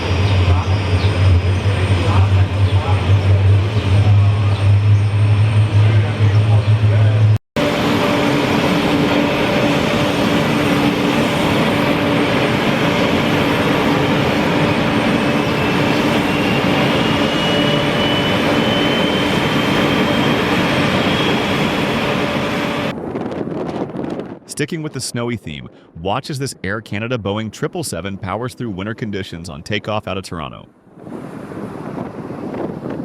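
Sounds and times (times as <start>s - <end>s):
high engine whine: 0.0s - 23.0s
jet engines running: 0.0s - 23.0s.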